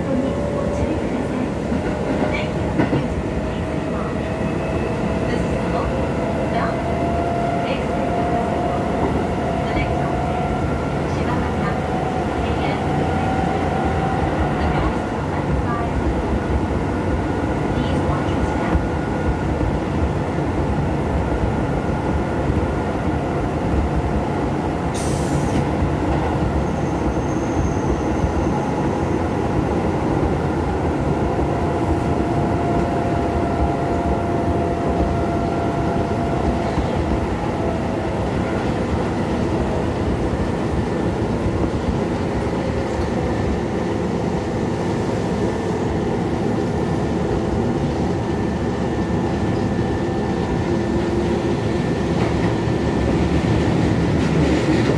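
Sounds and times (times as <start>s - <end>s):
train wheels rumbling on rails: 0.0s - 54.9s.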